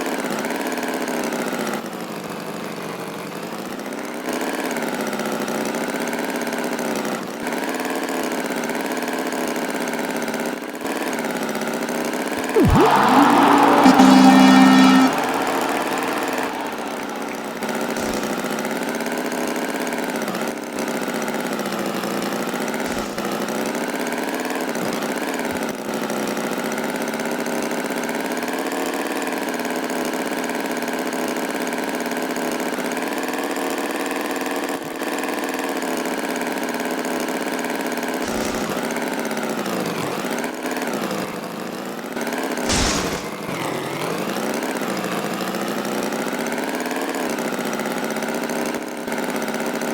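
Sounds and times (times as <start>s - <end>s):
brief sharp high sound: 12.6s - 18.5s, 42.7s - 43.4s.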